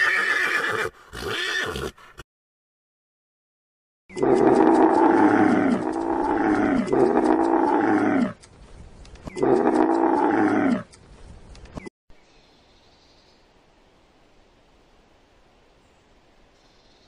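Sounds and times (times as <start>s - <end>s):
camel calling: 4.1s - 8.4s, 9.3s - 10.9s.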